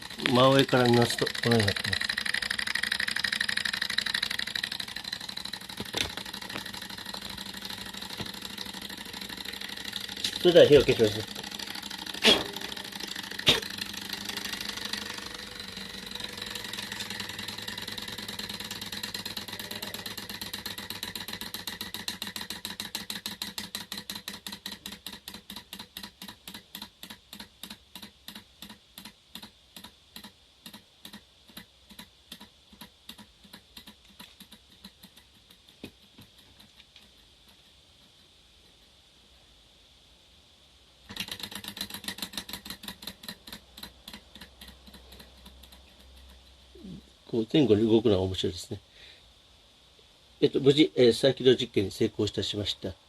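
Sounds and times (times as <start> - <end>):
engine model mechanical ticking: 0.0 - 38.9, 41.1 - 46.9
sharp clicks: 19.1 - 37.7, 41.1 - 46.8.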